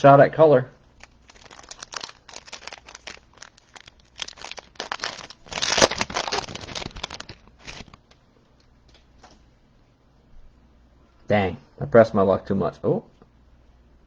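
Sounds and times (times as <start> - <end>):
foil wrapper tearing and crinkling: 1.0 - 8.0.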